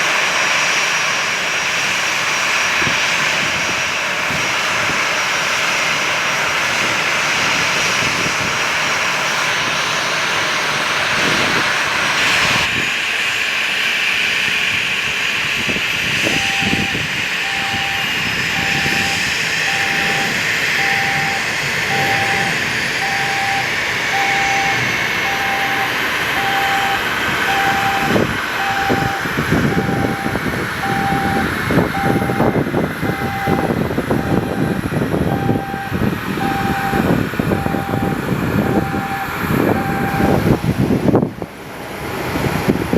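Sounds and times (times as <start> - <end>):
jet engines running: 0.0 - 42.9
wind buffeting microphone: 2.6 - 9.9, 10.7 - 13.2, 14.2 - 42.9
electronic beeps: 16.3 - 32.5, 33.1 - 40.3.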